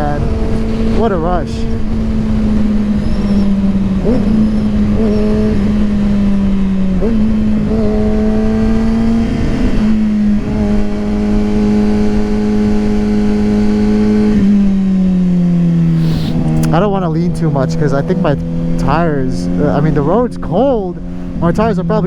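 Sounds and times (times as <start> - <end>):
wind noise: 0.0 - 15.2
motorcycle engine cruising: 0.0 - 22.0.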